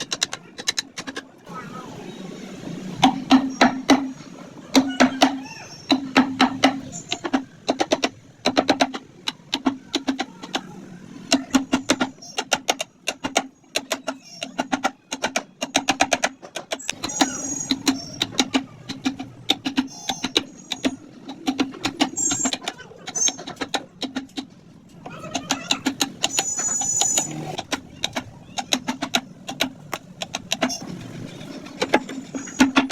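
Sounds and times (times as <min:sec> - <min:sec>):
carving tools tapping wood: 0:00.0 - 0:01.2, 0:04.8 - 0:10.7, 0:11.3 - 0:24.6, 0:25.4 - 0:30.9.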